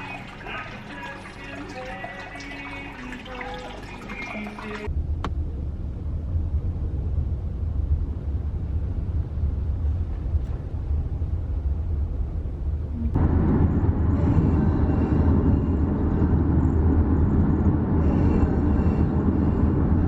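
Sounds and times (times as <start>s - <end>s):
low rumble: 4.8s - 20.0s.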